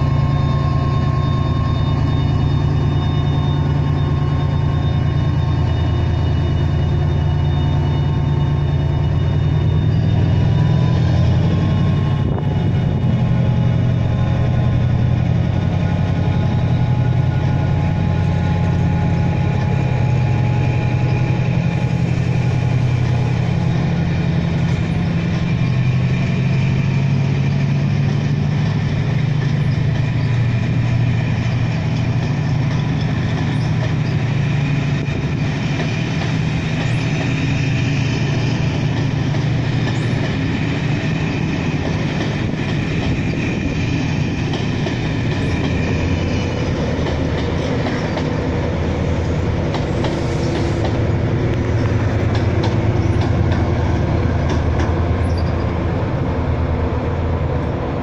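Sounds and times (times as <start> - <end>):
locomotive engine droning: 0.0 - 58.0
coach wheels running over track: 27.3 - 56.2.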